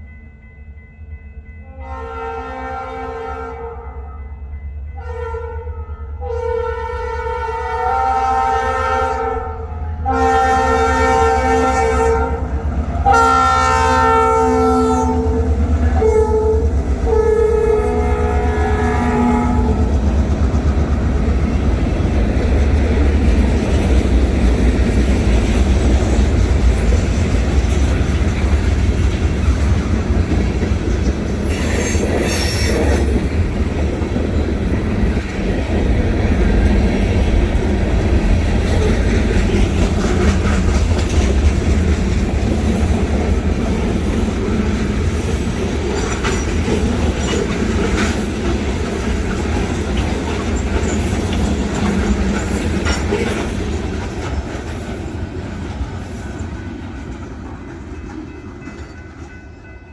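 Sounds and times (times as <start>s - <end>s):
freight train rumbling on rails: 0.0s - 59.9s
train wheels squealing: 31.4s - 33.4s.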